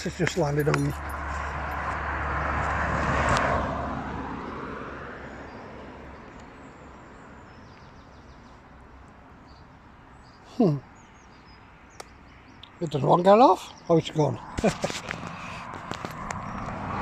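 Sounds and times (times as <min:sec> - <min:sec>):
car driving past: 0:00.9 - 0:06.2, 0:14.4 - 0:17.0.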